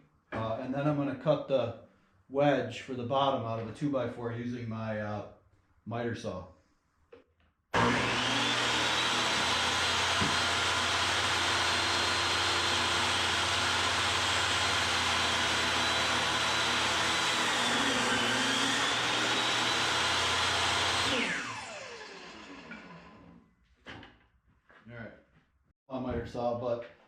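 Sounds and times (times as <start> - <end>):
power tool motor whining: 7.8 - 23.4.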